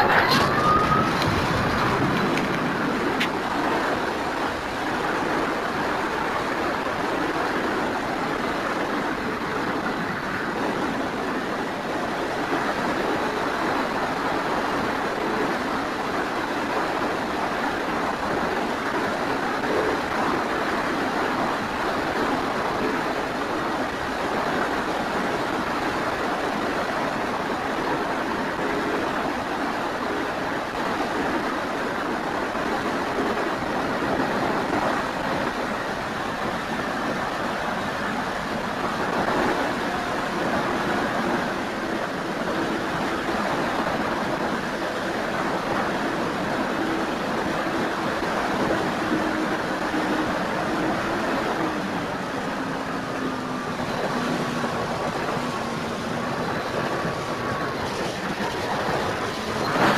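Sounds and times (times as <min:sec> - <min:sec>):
electric motor and propeller hum: 0:00.0 - 0:05.4
wind rushing over microphone: 0:00.0 - 0:59.9.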